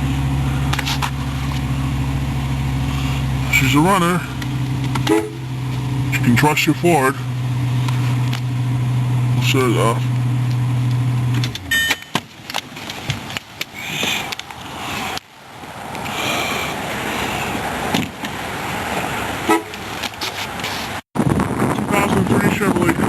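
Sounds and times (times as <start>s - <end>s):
car engine idling: 0.0s - 21.0s
short electronic tones: 5.1s - 5.5s, 11.7s - 12.2s.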